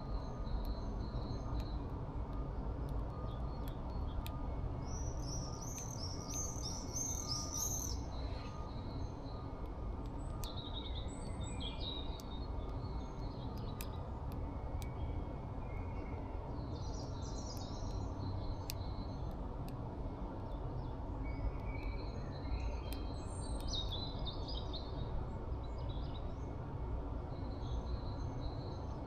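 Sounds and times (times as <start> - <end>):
small birds chirping: 3.2 - 19.3, 20.4 - 26.5.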